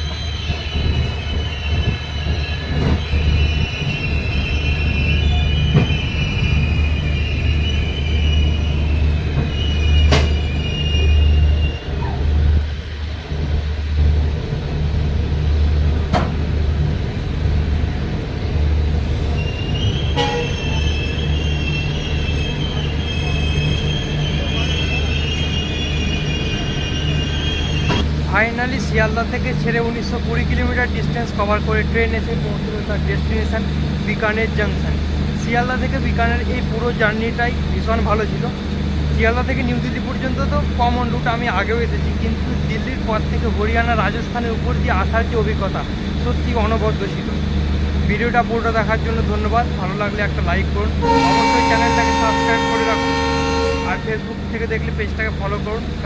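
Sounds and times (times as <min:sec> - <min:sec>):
metallic wheel squeal: 0:00.0 - 0:12.2, 0:19.2 - 0:28.0
train coaches rumbling: 0:00.0 - 0:56.0.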